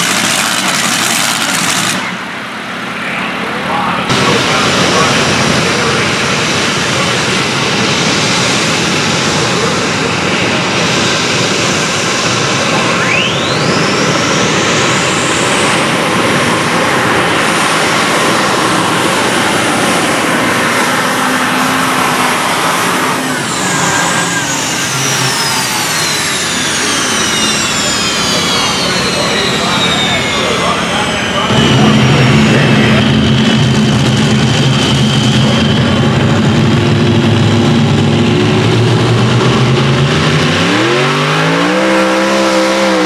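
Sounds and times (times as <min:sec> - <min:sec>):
high whine: 0:00.0 - 0:43.0
tractor engine running loud: 0:00.0 - 0:43.0.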